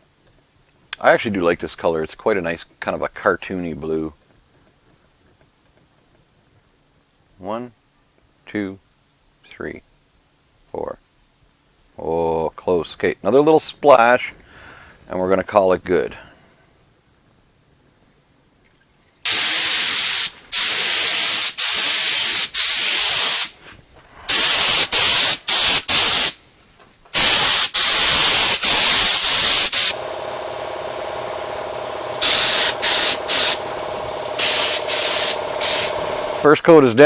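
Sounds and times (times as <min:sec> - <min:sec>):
spray gun hissing: 0:19.3 - 0:23.6, 0:24.3 - 0:26.4, 0:27.2 - 0:36.5
steady machine hum: 0:28.0 - 0:36.5.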